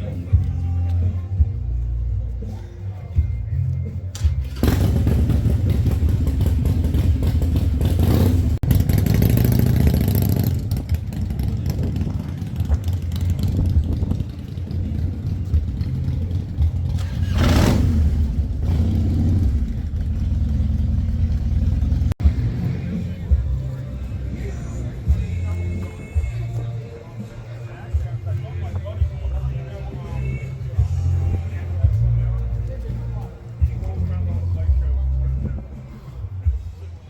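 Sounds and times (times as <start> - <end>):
vehicle engine revving: 4.1 - 26.1.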